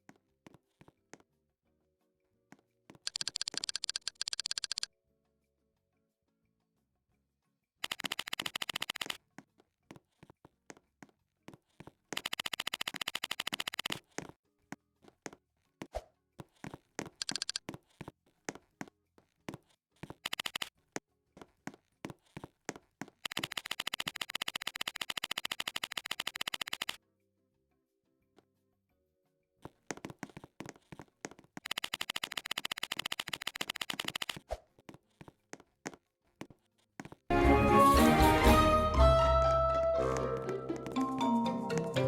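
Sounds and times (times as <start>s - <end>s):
rapid sharp clicking: 3.1s - 4.9s, 7.8s - 9.2s, 12.2s - 14.0s, 17.2s - 17.6s, 20.2s - 20.7s, 23.2s - 27.0s, 31.6s - 34.4s.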